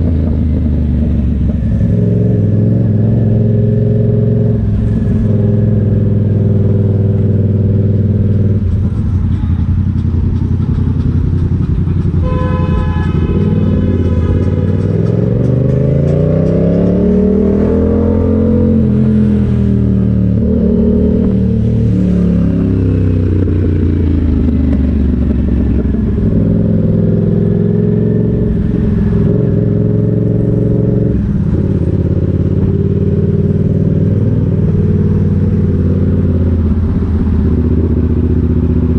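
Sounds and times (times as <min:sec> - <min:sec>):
motorcycle engine revving: 0:00.0 - 0:38.9
horn tone: 0:12.2 - 0:15.2.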